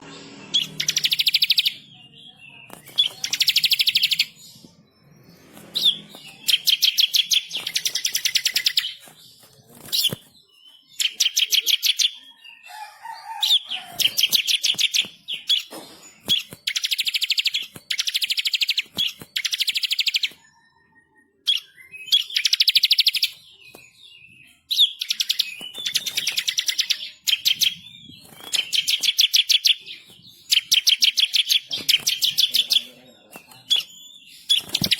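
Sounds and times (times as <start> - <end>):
bird singing rolling trills: 0.0 - 34.9
bird chips: 2.6 - 20.4, 24.7 - 34.9.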